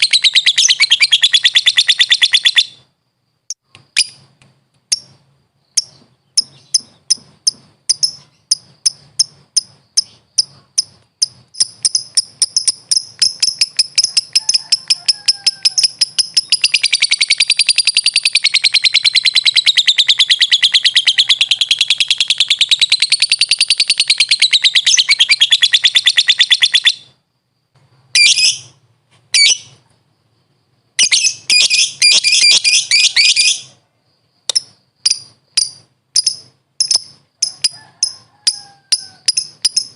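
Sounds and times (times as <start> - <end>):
lovebird chirping and trilling: 0.0 - 2.9, 3.5 - 4.3, 4.9 - 27.2, 28.1 - 29.8, 31.0 - 33.8, 34.5 - 39.9.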